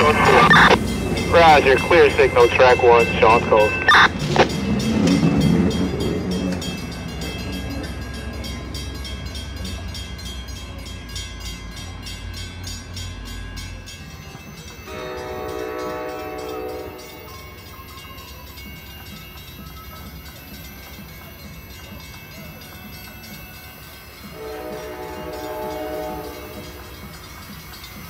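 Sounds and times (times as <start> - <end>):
train rumble: 0.0 - 28.0
train horn chord: 14.9 - 17.1, 24.3 - 26.9.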